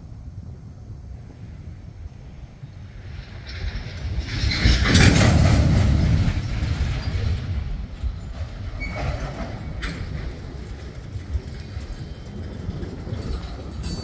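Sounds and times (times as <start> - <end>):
freight cars rolling past: 0.0 - 14.0
steel wheels clattering on rails: 3.0 - 14.0.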